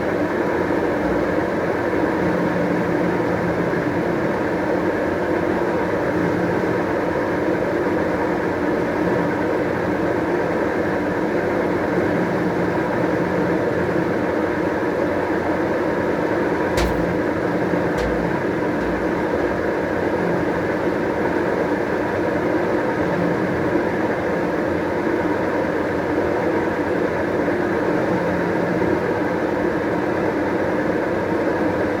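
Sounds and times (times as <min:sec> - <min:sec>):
washing machine spin cycle whirring: 0:00.1 - 0:02.8, 0:16.7 - 0:20.8
short clicks with low thumps: 0:16.8 - 0:17.4, 0:18.0 - 0:19.9.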